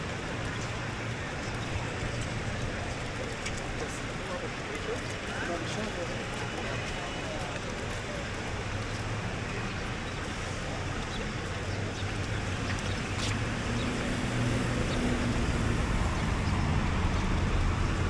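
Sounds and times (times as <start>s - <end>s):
cars going by: 6.6s - 18.0s.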